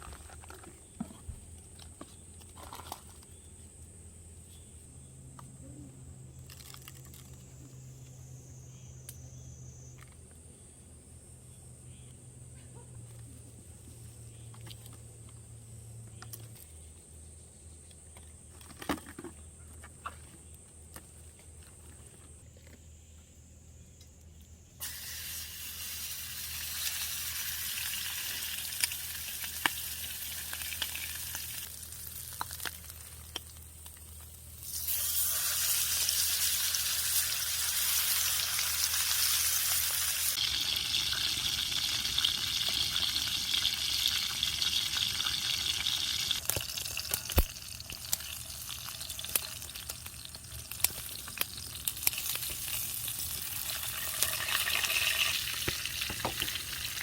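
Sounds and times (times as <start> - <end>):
food sizzling in a pan: 24.8 - 32.3, 34.6 - 57.0.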